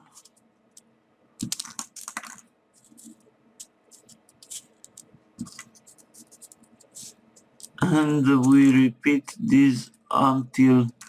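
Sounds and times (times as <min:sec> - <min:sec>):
paper taps and clicks: 0:01.4 - 0:07.0
paper rustling: 0:01.4 - 0:07.8.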